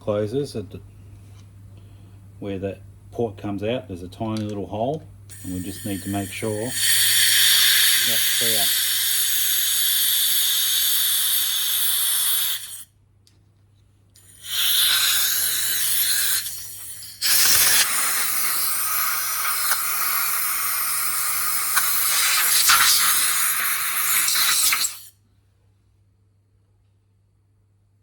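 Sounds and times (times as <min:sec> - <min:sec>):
compressed air hissing: 0:05.3 - 0:12.9, 0:14.2 - 0:25.1.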